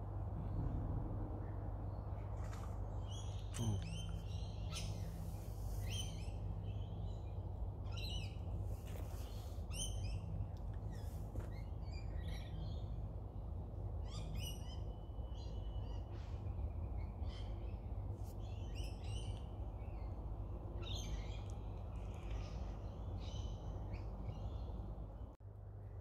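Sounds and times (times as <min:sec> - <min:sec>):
low rumble: 0:00.0 - 0:03.1
birds chirping: 0:01.4 - 0:25.4.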